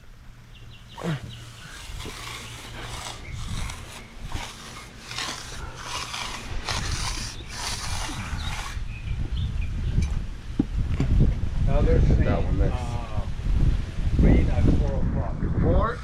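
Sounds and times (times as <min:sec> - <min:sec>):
hand tool scraping concrete: 0:01.0 - 0:08.8.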